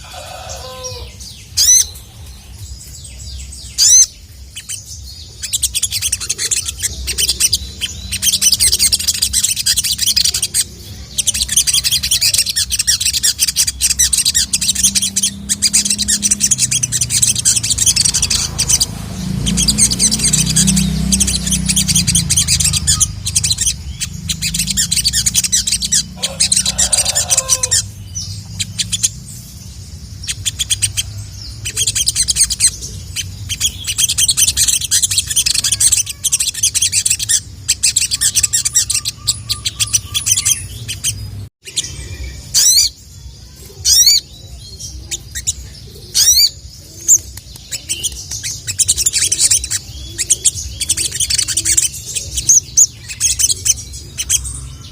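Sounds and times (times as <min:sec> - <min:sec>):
bird chattering twitter: 0:00.0 - 0:54.9
bird whistled calls: 0:30.3 - 0:41.1.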